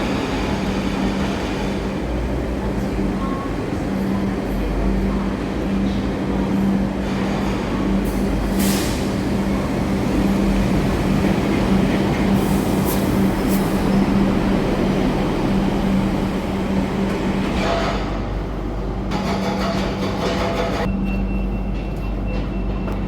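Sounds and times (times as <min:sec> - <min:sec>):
light rail car rumble: 0:00.0 - 0:23.0.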